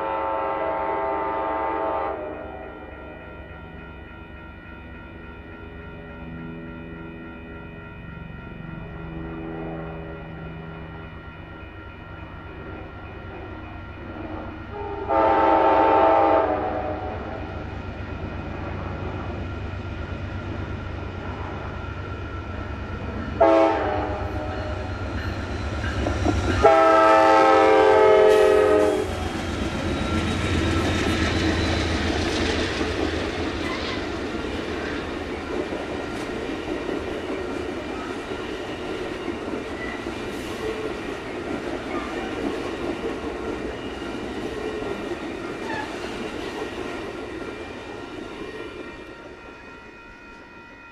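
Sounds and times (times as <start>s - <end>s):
train air horn blasts: 0.0s - 2.9s, 14.7s - 17.6s, 23.4s - 24.9s, 26.6s - 29.3s
diesel locomotive engine: 0.0s - 50.9s
rail cars rumbling by: 0.0s - 50.9s.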